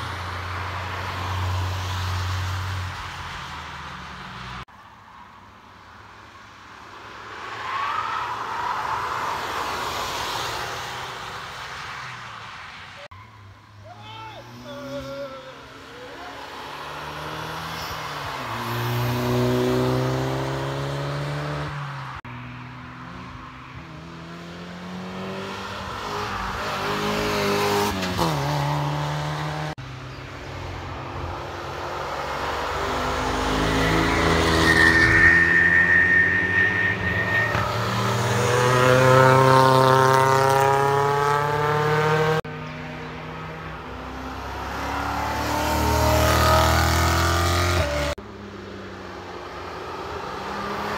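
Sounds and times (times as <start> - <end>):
race cars driving past: 14.4 - 50.9.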